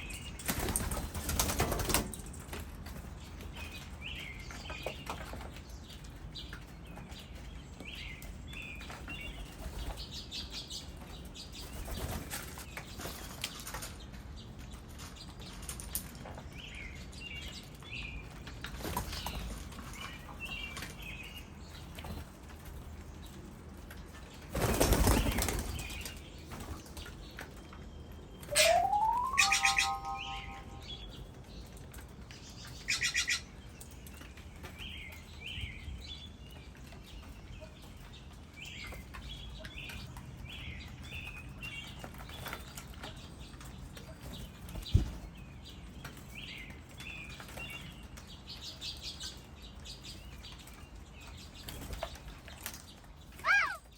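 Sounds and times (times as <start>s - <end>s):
bird wingbeats: 24.6s - 26.1s
birds chirping: 28.2s - 31.3s.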